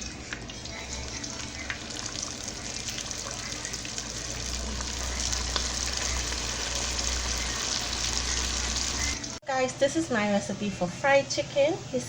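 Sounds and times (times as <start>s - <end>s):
chicken deep-frying in oil: 0.0s - 9.4s.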